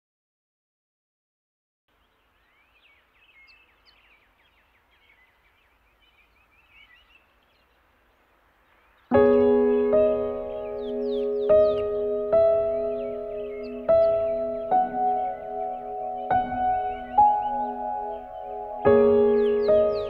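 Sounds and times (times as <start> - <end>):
sustained keyboard chord: 9.1 - 20.0.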